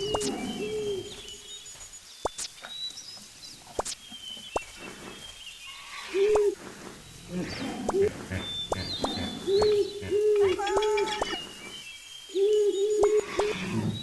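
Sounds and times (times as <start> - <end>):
bird cooing: 0.0 - 1.2, 6.1 - 6.6, 7.3 - 11.4, 12.3 - 14.0
bird chirps and whistles: 8.4 - 13.9.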